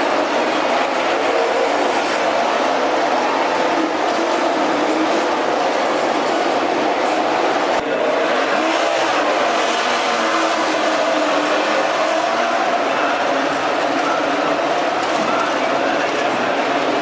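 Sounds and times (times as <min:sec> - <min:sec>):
racing motorcycle engines at high revs: 0:07.8 - 0:17.0.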